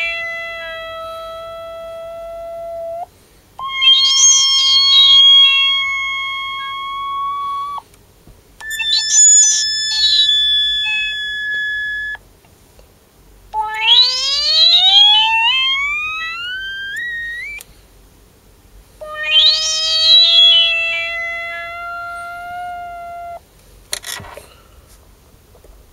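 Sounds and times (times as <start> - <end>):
held synthesizer tones: 0.0 - 7.8, 8.6 - 12.2, 13.6 - 17.6, 19.0 - 23.4.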